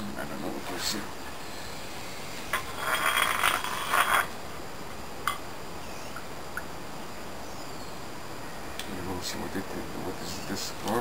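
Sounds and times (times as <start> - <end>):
rustling and scraping: 1.8 - 4.4.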